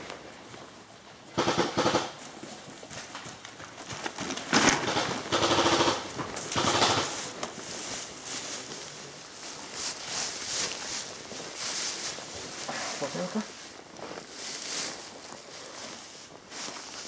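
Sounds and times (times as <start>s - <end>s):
airsoft guns firing bursts: 1.4s - 2.2s, 4.5s - 7.5s.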